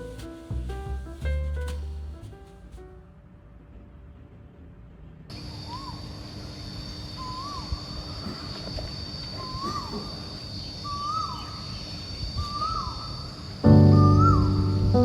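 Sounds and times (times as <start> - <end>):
bird whistling: 7.2 - 7.8, 14.0 - 14.9.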